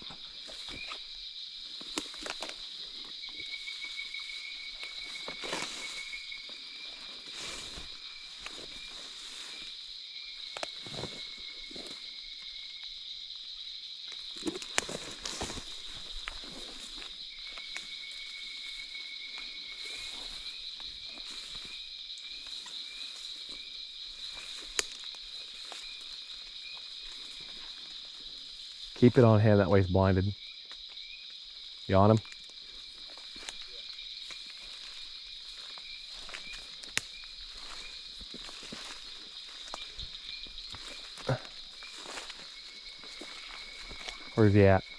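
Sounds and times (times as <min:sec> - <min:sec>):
insects chirring: 0:00.0 - 0:44.9
low rapid insect trill: 0:00.0 - 0:44.9
footsteps: 0:03.9 - 0:09.7, 0:14.4 - 0:17.9, 0:33.0 - 0:44.9.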